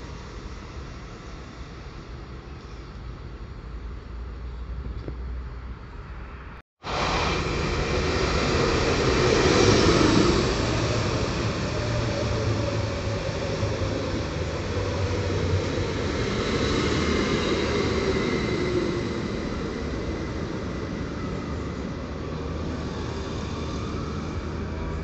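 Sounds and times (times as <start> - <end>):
train wheels rumbling on rails: 6.8 - 25.0.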